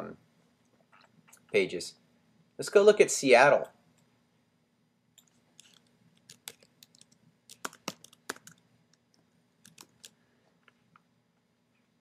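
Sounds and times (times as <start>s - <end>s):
keyboard typing clicks: 5.2s - 8.6s, 9.6s - 10.2s.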